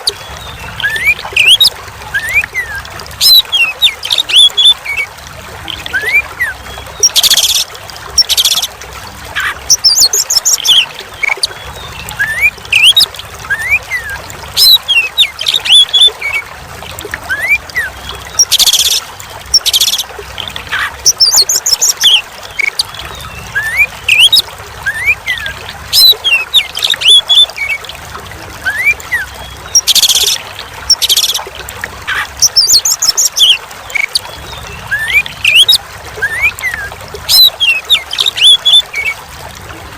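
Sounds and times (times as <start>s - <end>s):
songbird whistling and trilling: 0.0s - 5.0s, 9.4s - 16.4s, 17.3s - 27.8s, 28.6s - 31.4s, 32.1s - 39.2s
trickling running water: 0.0s - 39.9s.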